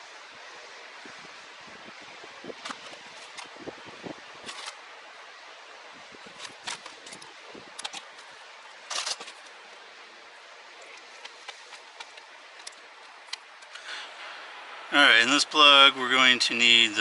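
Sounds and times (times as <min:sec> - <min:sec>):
steady hiss: 0:00.0 - 0:17.0
clicks handling plastic parts: 0:06.4 - 0:08.1.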